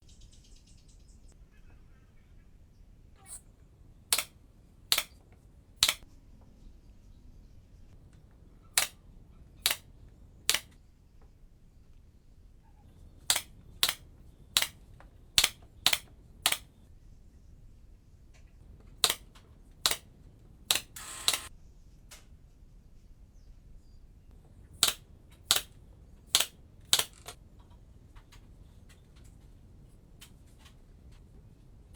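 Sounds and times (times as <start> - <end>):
sharp clicks: 4.1 - 5.2, 5.8 - 6.0, 8.7 - 9.0, 9.6 - 10.8, 13.1 - 16.8, 18.7 - 20.1, 20.7 - 21.5, 24.8 - 27.4.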